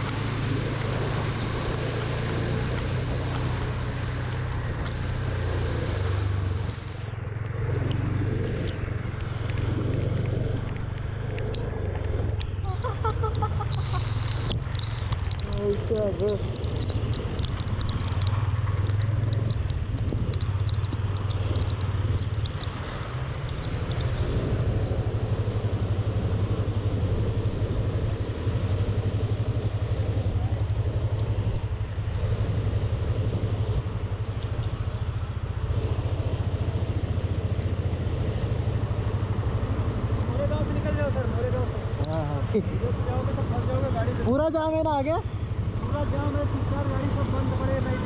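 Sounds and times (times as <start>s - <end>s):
road noise: 0.0s - 48.0s
vehicle engine humming: 0.0s - 48.0s
light high-pitched ticking: 8.6s - 31.7s, 33.8s - 48.0s.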